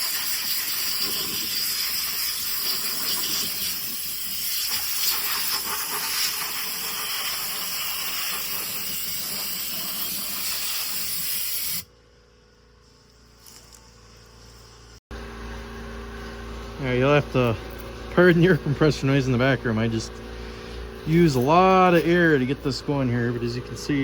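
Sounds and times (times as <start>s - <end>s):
compressed air blow gun hissing: 0.0s - 11.8s
faint steady hum: 11.9s - 24.0s.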